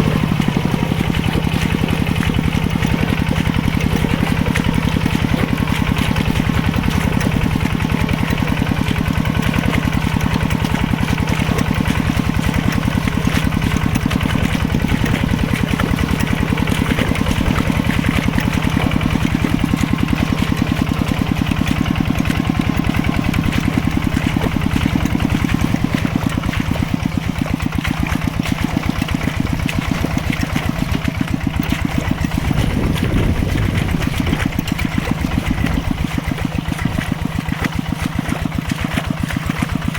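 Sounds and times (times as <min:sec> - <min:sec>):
tractor engine chugging: 0:00.0 - 0:39.9.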